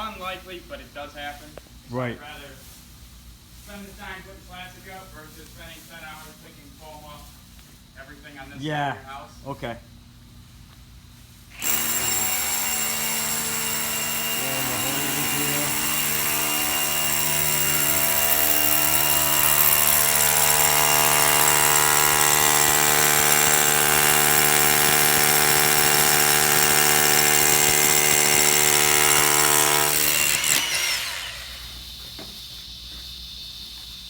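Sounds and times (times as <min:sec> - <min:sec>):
power tool motor winding down: 0:11.6 - 0:31.7.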